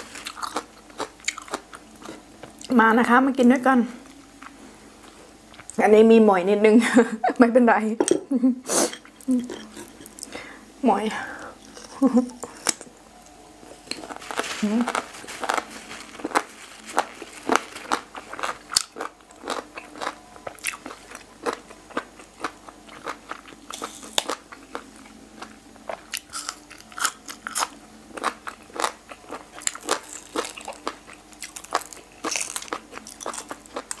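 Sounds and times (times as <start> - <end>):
cartilage crunching while chewing: 0.0 - 2.7, 13.8 - 34.0.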